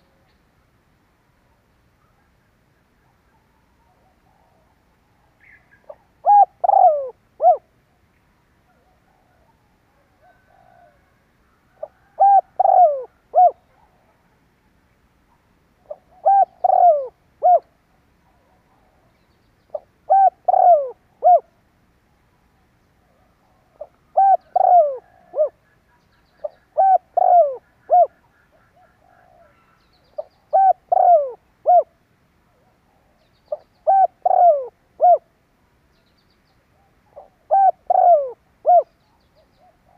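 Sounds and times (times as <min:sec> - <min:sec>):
dove cooing: 0:03.0 - 0:07.7, 0:11.7 - 0:14.4, 0:15.8 - 0:19.1, 0:19.7 - 0:21.6, 0:23.0 - 0:25.8, 0:26.4 - 0:35.3, 0:36.8 - 0:39.9.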